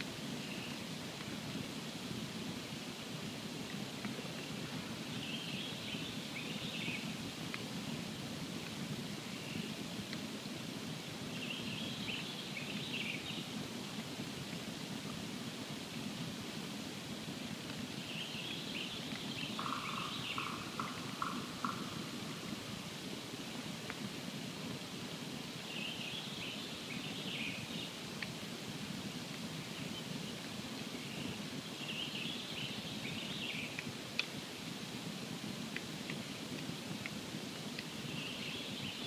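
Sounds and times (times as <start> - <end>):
songbird singing: 0.0 - 0.9, 4.0 - 8.1, 9.2 - 9.8, 11.3 - 13.5, 17.9 - 23.6, 25.5 - 28.0, 29.6 - 34.3, 37.8 - 39.0
campfire crackling: 0.0 - 39.0.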